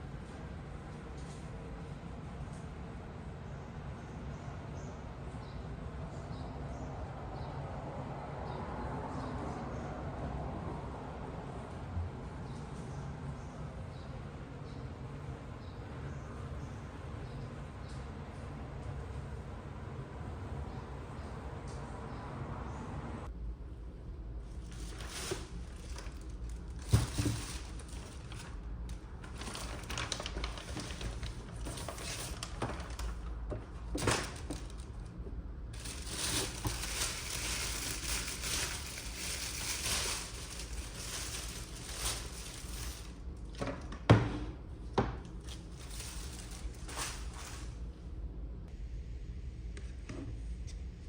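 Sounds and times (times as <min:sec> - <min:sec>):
packaging crinkling and rustling: 0:24.6 - 0:43.6, 0:45.3 - 0:47.8.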